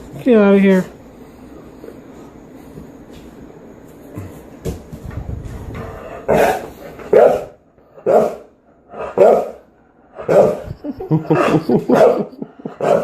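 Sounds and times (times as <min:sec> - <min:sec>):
dog barking: 0:06.3 - 0:08.5, 0:09.1 - 0:09.6, 0:10.3 - 0:10.6, 0:11.9 - 0:13.0.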